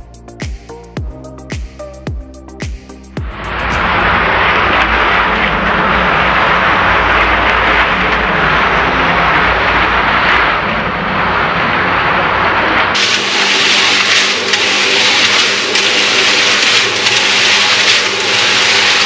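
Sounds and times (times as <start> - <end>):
cement mixer running: 3.2 - 19.0.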